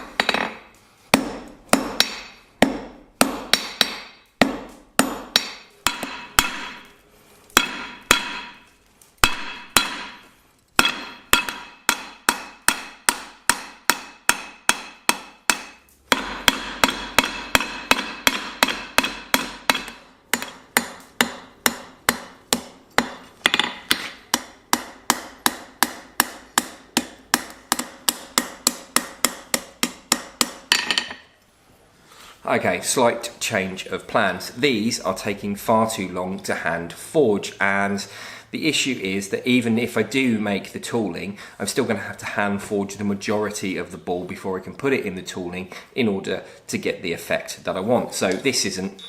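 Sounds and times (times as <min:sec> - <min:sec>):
hammer striking steel on anvil: 0:00.0 - 0:06.9, 0:07.6 - 0:31.2.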